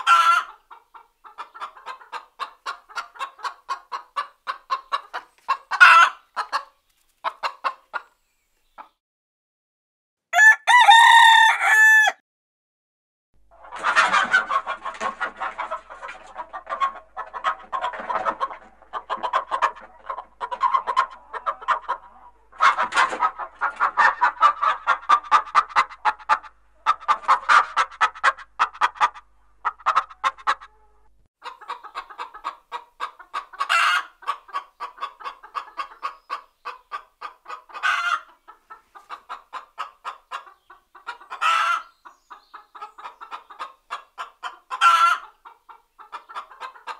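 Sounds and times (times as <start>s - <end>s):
hens clucking: 0.0s - 9.0s, 13.5s - 46.9s
rooster crowing: 10.3s - 12.2s.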